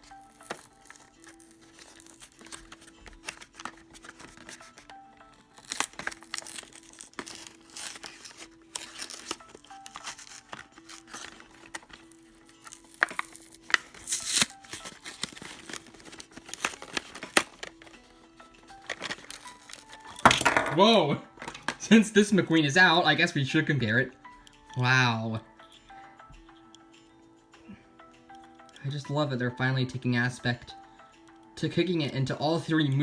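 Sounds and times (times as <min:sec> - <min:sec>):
packaging tearing and crinkling: 0:00.0 - 0:20.5
soft background music: 0:00.0 - 0:33.0.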